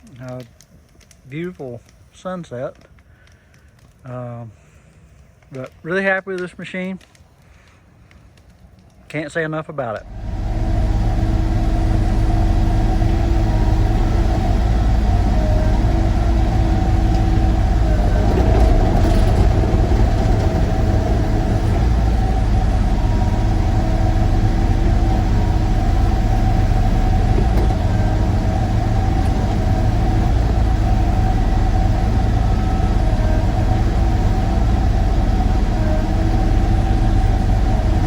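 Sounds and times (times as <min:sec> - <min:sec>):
excavator diesel engine running: 0:10.0 - 0:38.0.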